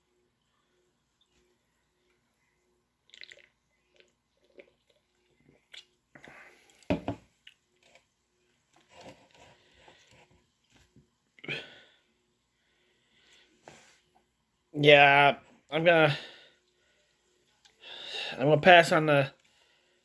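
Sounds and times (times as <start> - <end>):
person sipping and swallowing: 3.0 - 7.6
knock: 6.9 - 7.2.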